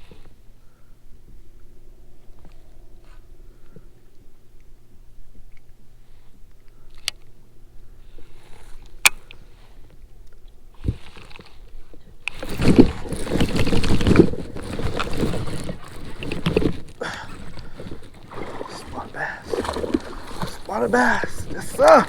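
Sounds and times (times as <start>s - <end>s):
water splashing against kayak: 10.7s - 22.0s.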